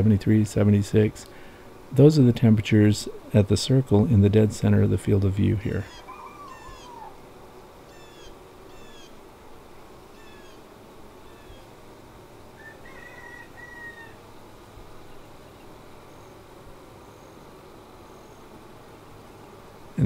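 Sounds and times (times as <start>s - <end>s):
faint steady hum: 0.0s - 20.0s
birds calling: 5.7s - 9.2s, 10.1s - 11.8s, 12.5s - 14.3s.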